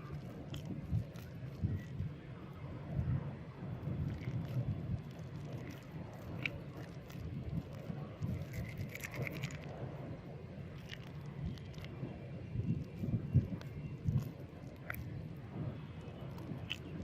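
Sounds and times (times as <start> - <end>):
crackling ticks: 12.8 - 15.1.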